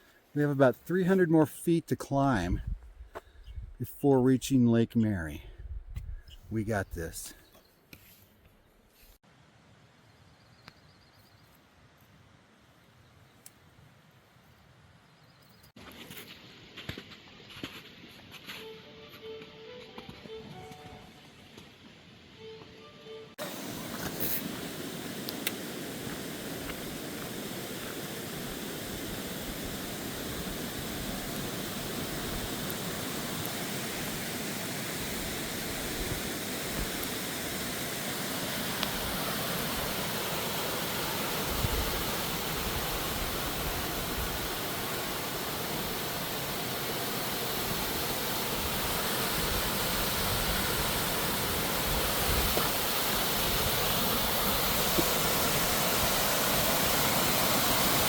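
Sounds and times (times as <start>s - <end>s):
rushing mountain stream: 23.4s - 58.0s.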